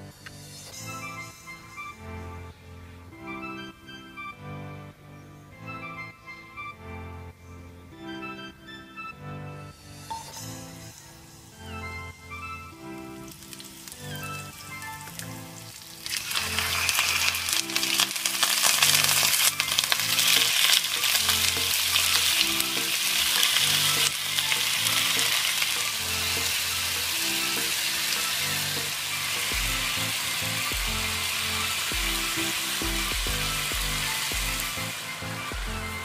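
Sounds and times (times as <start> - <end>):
chicken sizzling in a wok: 15.7 - 35.5.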